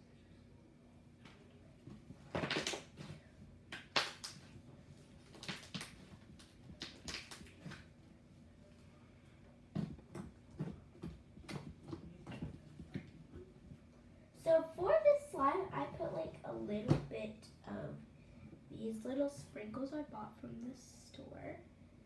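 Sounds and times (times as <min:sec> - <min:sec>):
slime squelching and popping: 0:03.7 - 0:04.5, 0:05.2 - 0:07.9.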